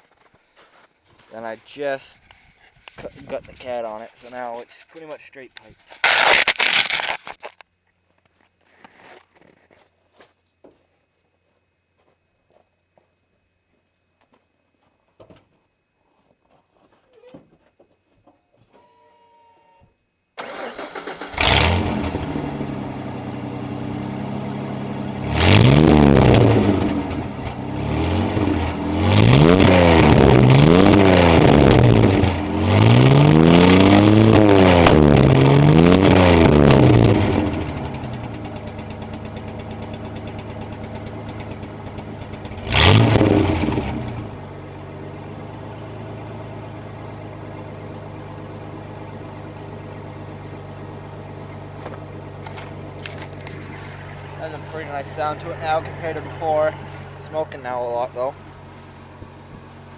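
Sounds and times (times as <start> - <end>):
engine revving: 20.4 - 47.8
truck engine cranking and idling: 20.4 - 59.9.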